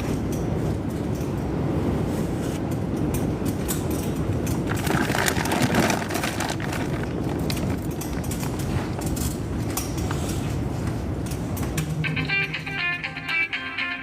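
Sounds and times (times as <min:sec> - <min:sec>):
wind buffeting microphone: 0:00.0 - 0:12.8.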